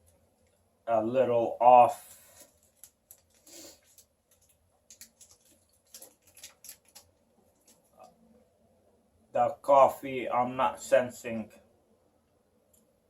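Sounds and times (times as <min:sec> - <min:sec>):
person chewing wafer bar: 0:02.4 - 0:08.1.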